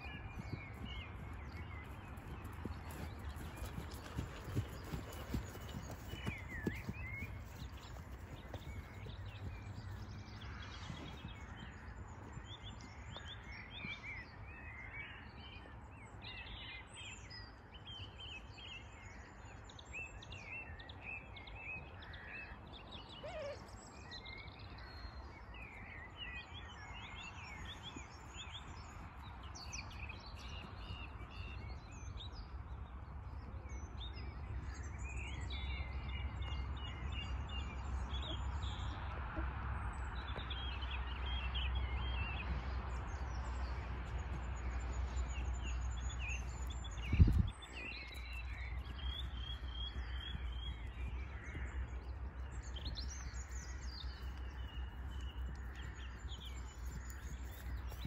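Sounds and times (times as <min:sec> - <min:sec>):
birds chirping and singing: 0:00.0 - 0:14.4, 0:39.8 - 0:58.0.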